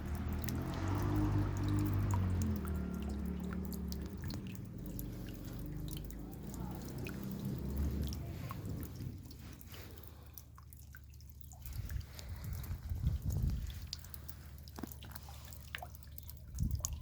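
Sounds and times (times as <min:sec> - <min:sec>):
raindrops dripping: 0:00.0 - 0:17.0
low rumble: 0:03.0 - 0:10.4, 0:11.7 - 0:14.6.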